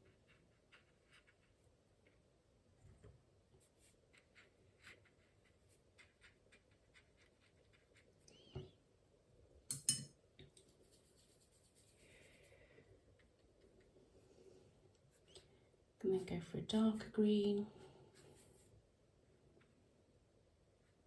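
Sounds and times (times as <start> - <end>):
paint brush tapping and scratching: 0.0 - 2.3, 3.6 - 8.2, 10.5 - 12.5.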